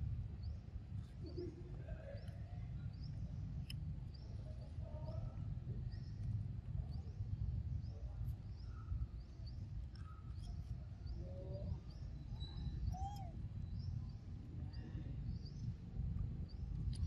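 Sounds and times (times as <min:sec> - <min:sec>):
steady low rumble: 0:00.0 - 0:17.0
small birds chirping: 0:06.9 - 0:15.8
lower whistled bird calls: 0:10.0 - 0:14.1.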